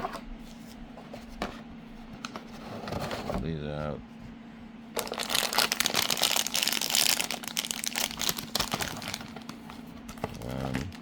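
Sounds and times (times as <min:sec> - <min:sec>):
plastic packaging crinkling: 0:05.0 - 0:11.0.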